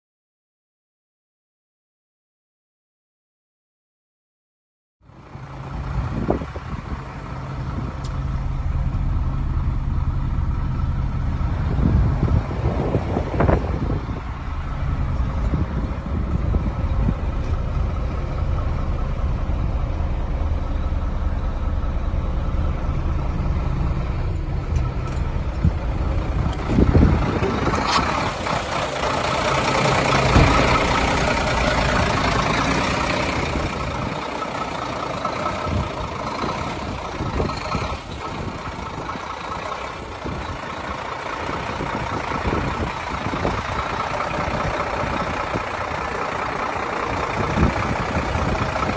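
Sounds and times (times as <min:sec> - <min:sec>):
truck diesel engine running: 0:05.0 - 0:48.9
mechanical whine and rush: 0:05.4 - 0:39.1.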